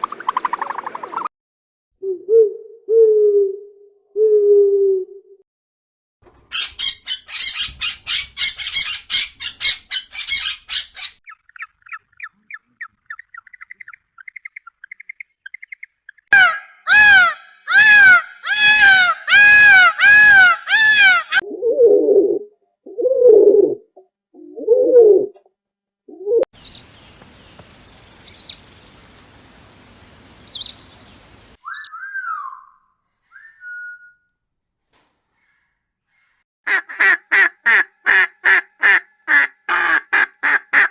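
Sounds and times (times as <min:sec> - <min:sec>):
high bird chirps and trills: 0:06.5 - 0:17.7, 0:26.6 - 0:29.0, 0:30.5 - 0:34.2
bird squawking harshly: 0:16.4 - 0:21.4, 0:36.7 - 0:40.9
loud wailing bird call: 0:16.4 - 0:21.4
whistled bird notes: 0:26.6 - 0:29.0, 0:30.5 - 0:34.4
background hiss: 0:26.6 - 0:31.6
high buzzing bird trill: 0:27.4 - 0:29.0.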